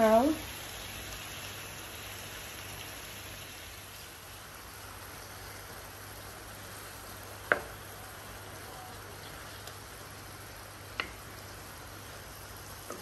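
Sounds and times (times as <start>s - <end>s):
fish and vegetables sizzling in oil: 0.0s - 13.0s
wooden spoon knocking on pan: 7.5s - 7.8s.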